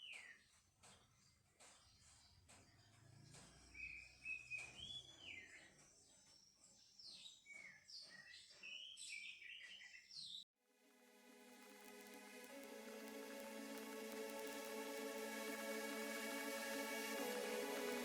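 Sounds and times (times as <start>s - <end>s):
faint birdsong chirping: 0.0s - 10.5s.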